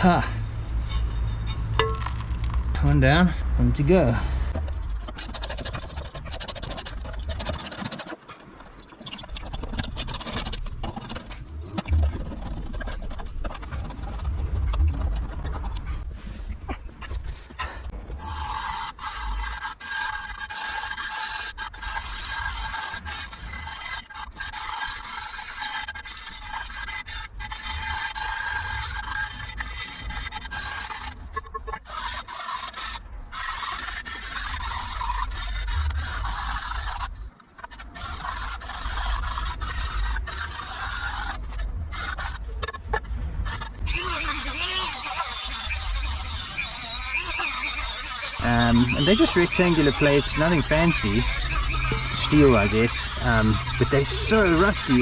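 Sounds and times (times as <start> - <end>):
scraping on rusty metal: 0.0 - 3.0, 43.5 - 55.0.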